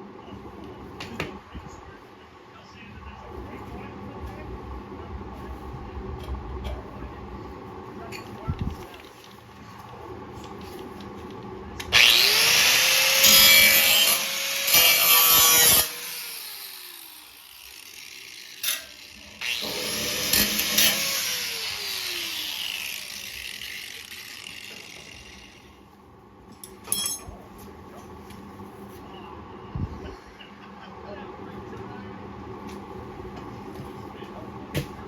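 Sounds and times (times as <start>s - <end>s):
angle grinder grinding steel: 11.9s - 25.8s.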